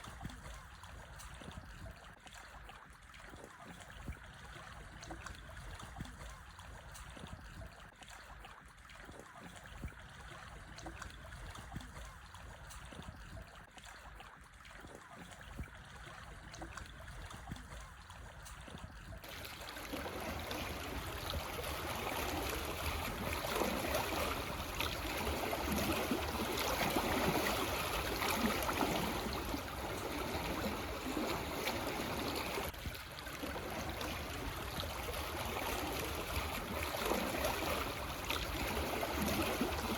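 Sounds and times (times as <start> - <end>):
small waves lapping over stones: 19.1 - 39.9.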